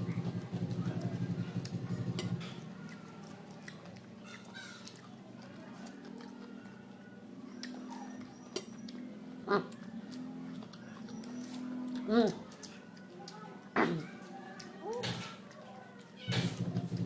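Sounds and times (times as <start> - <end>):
man chewing food: 0.0 - 16.2
lip smacks: 1.0 - 6.6.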